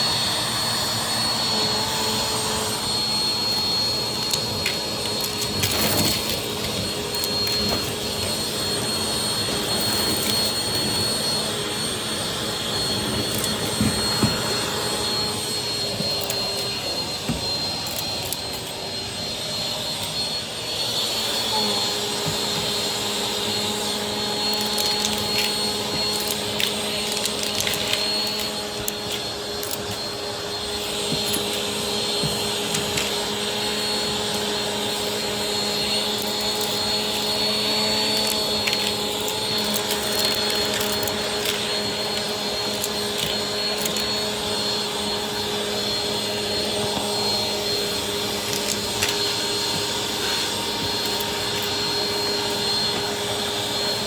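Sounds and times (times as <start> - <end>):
vacuum cleaner running: 0.0 - 54.0
clicks: 13.1 - 18.8.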